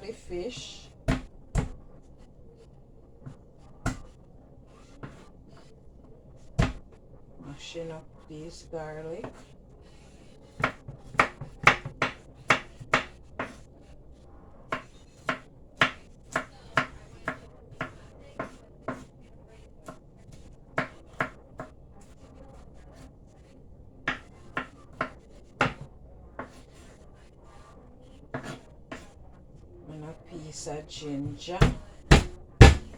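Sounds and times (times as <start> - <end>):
garlic being mashed with knocks: 1.0 - 1.8, 3.8 - 4.1, 6.6 - 6.9, 10.6 - 13.6, 24.1 - 26.5, 31.3 - 32.9.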